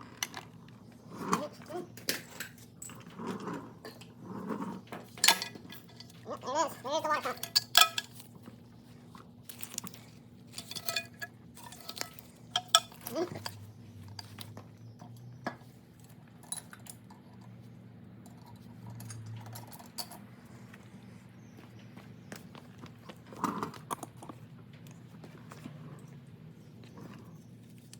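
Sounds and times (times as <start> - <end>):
metallic clinks of hand tools: 10.5 - 13.6.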